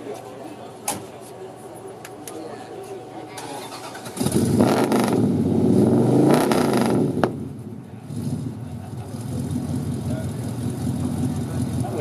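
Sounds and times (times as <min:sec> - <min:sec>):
engine backfire crack: 0:03.4 - 0:05.4
car engine revving: 0:03.4 - 0:12.0.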